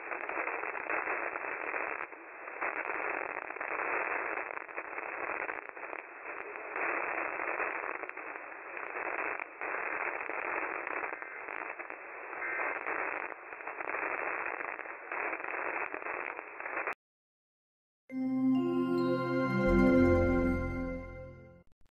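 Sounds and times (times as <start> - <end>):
radio static hiss with crackles: 0.0 - 17.0.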